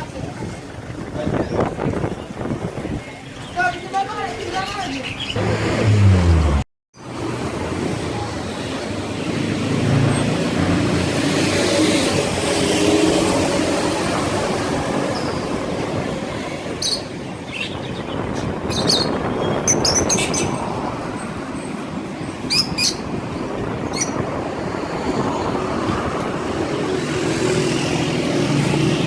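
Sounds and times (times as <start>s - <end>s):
street traffic noise: 0.0s - 29.0s
vehicle passing: 5.3s - 15.0s
small birds chirping: 16.7s - 20.7s.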